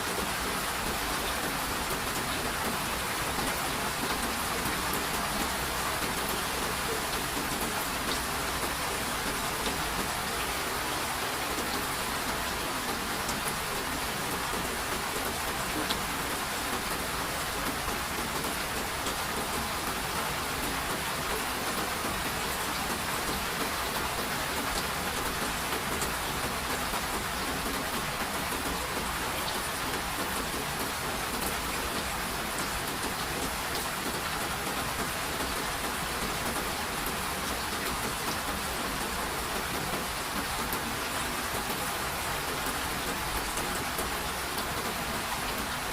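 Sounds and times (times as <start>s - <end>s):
steady rain hiss: 0.0s - 45.9s.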